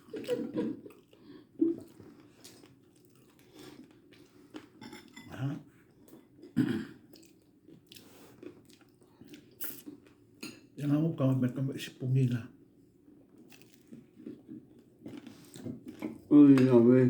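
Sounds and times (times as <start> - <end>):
person chewing crunchy food: 0.0 - 5.2, 5.9 - 10.2, 13.3 - 16.2.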